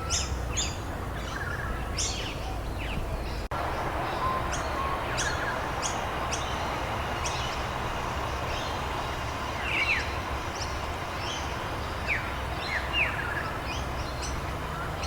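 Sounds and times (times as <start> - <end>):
birds chirping: 0.0 - 15.0
steady rain: 3.5 - 15.0.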